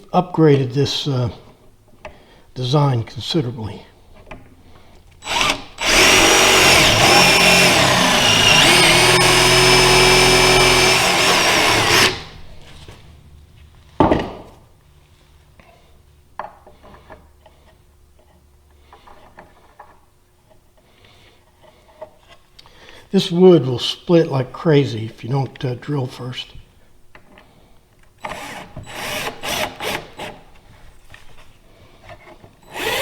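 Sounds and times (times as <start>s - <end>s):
power drill boring into wood: 5.2s - 12.4s, 28.2s - 30.4s, 32.7s - 33.0s.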